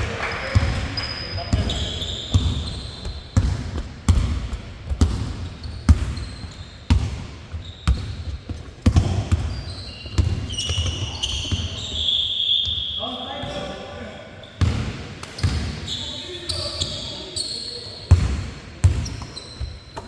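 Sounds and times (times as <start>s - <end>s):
sneakers squeaking: 0.0s - 20.0s
basketball bouncing on hard court: 0.4s - 12.0s, 18.1s - 19.8s.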